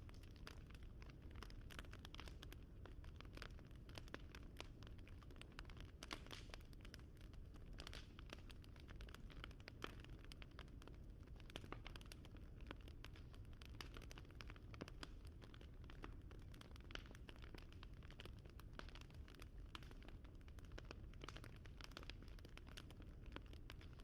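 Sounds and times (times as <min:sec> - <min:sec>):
wood fire crackling quietly: 0:00.0 - 0:24.0.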